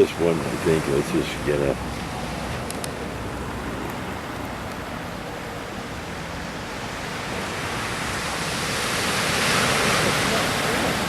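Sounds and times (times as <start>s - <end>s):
ocean surf rushing: 0.0s - 11.0s.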